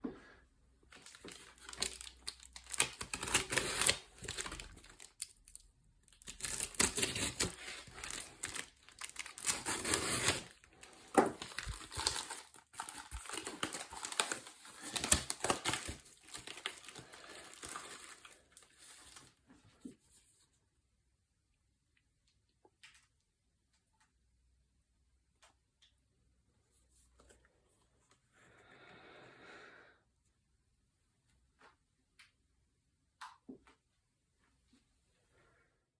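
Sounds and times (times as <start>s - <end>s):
packaging crinkling and tearing: 0.9s - 19.4s.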